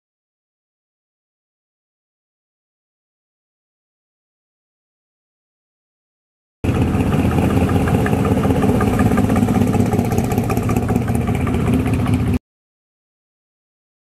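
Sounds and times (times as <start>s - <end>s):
car engine running: 6.6s - 12.4s.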